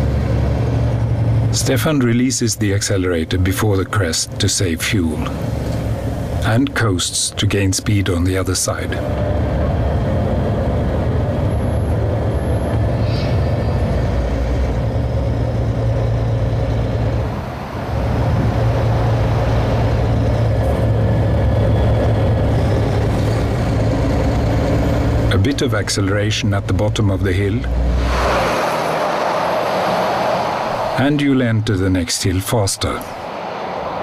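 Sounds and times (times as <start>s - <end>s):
truck engine drone: 0.0s - 34.0s.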